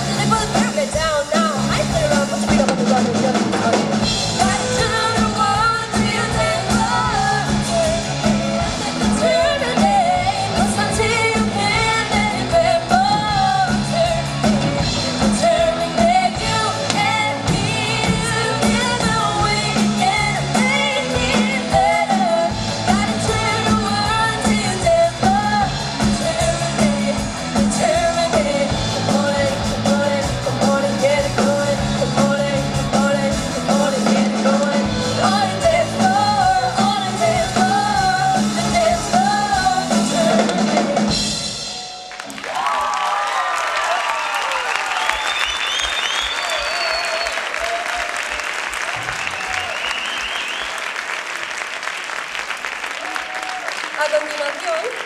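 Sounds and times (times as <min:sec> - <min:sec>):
person singing: 0:00.0 - 0:41.4
rock band playing live: 0:00.0 - 0:42.7.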